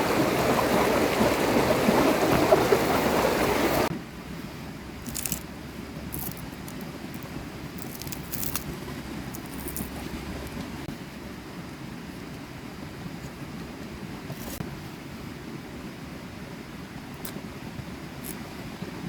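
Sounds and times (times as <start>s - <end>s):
rushing river water: 0.0s - 3.9s, 6.1s - 10.9s
faint crackles: 5.0s - 5.4s, 6.1s - 10.8s.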